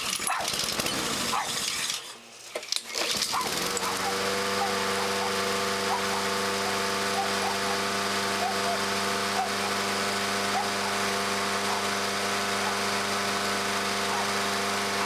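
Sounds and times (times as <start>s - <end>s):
lawn mower running: 0.0s - 15.0s
dog whining: 3.3s - 9.8s, 10.5s - 13.0s, 14.1s - 14.4s.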